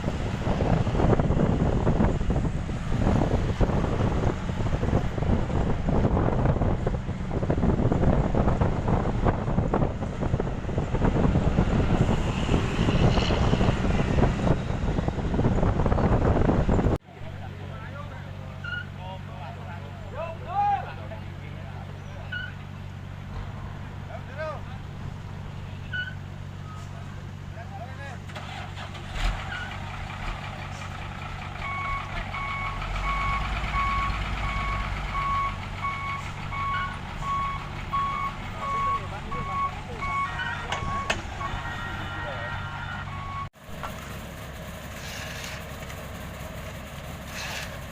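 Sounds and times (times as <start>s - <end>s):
wind buffeting microphone: 0.0s - 17.0s
diesel engine rumble: 0.0s - 47.9s
reversing alarm beeping: 31.6s - 43.5s.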